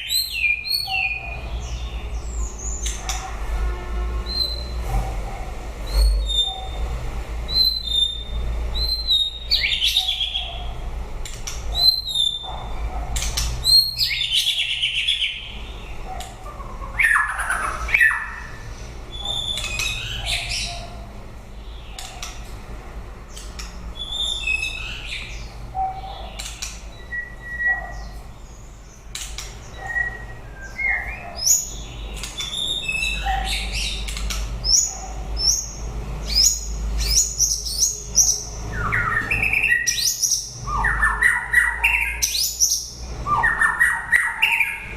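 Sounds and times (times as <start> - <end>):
bird singing whistled phrases: 26.9 - 28.2, 29.7 - 31.7.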